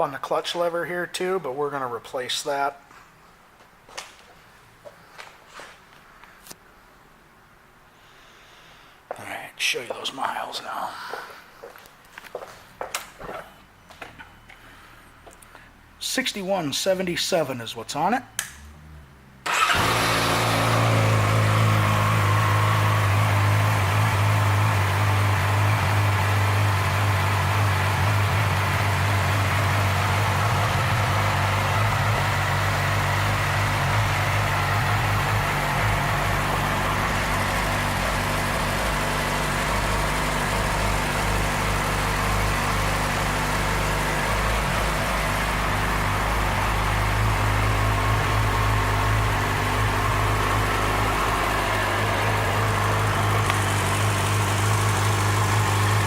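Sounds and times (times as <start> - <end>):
motorcycle engine idling: 19.5 - 56.0.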